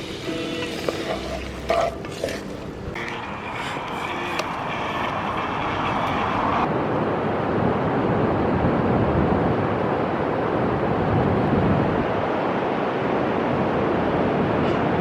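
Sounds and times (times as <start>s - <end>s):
ocean surf rushing: 2.9s - 15.0s
wind buffeting microphone: 4.4s - 15.0s.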